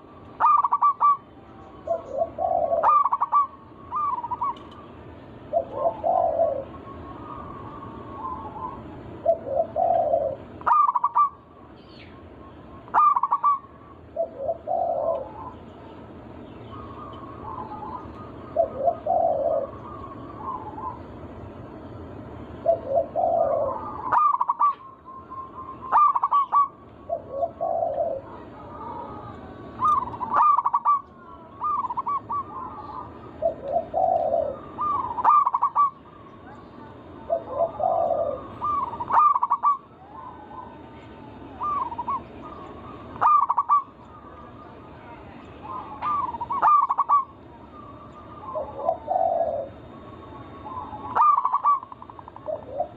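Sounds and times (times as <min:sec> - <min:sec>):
dove cooing: 0:00.0 - 0:11.6, 0:12.5 - 0:15.7, 0:16.6 - 0:21.4, 0:22.6 - 0:52.9
steady background hiss: 0:00.0 - 0:52.9.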